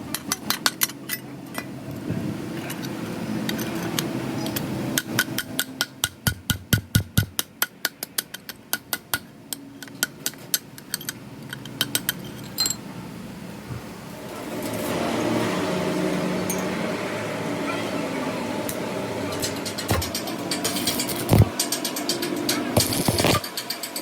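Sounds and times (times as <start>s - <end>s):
hammer tapping on metal: 5.0s - 10.6s
steady machine noise: 14.0s - 24.0s.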